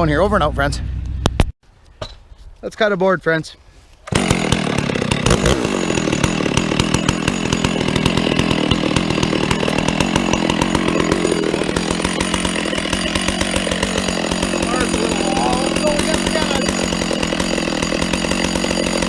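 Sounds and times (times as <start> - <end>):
chainsaw cutting log: 4.1 - 19.0.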